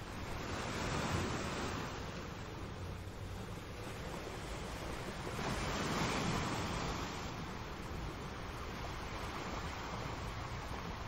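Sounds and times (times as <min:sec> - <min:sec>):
sea waves breaking on rocks: 0:03.9 - 0:11.0.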